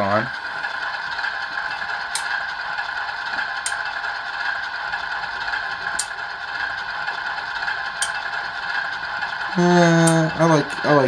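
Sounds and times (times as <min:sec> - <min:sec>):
thin hiss-like engine sound from speaker: 0:00.0 - 0:11.0
sharp ticks: 0:01.6 - 0:02.6, 0:03.4 - 0:11.0.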